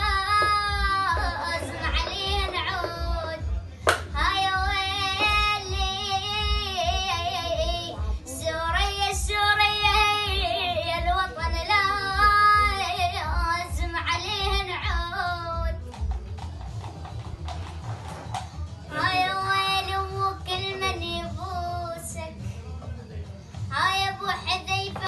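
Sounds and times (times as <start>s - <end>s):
child singing: 0.0s - 16.0s, 18.9s - 22.5s, 23.7s - 25.0s
low steady beat: 0.0s - 18.8s.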